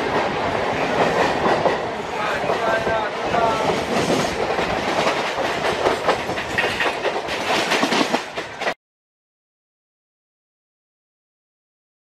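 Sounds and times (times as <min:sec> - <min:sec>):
train wheel and track noise: 0:00.0 - 0:08.8
wheels clattering over rail joints: 0:01.0 - 0:08.8.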